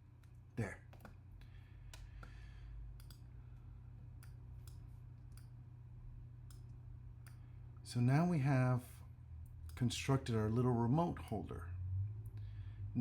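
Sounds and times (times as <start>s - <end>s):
steady low hum: 0.0s - 13.0s
computer mouse clicks: 0.2s - 3.3s, 4.2s - 5.5s.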